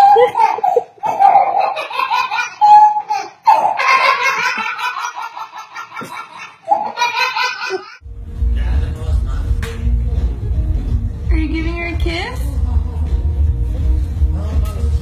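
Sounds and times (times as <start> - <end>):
baby giggling: 0.0 - 8.0.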